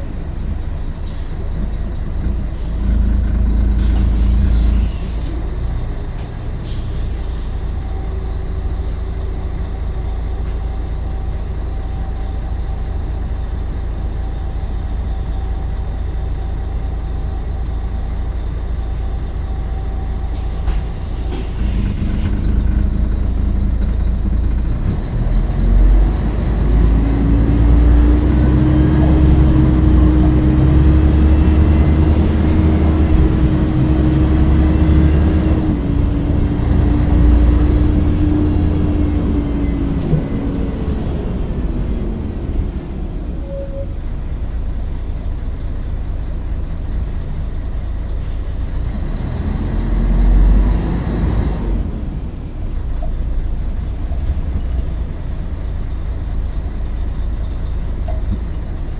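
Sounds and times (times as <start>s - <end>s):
bus diesel engine: 0.0s - 58.9s
air brake hisses: 2.6s - 5.3s, 6.6s - 7.7s, 20.2s - 22.7s.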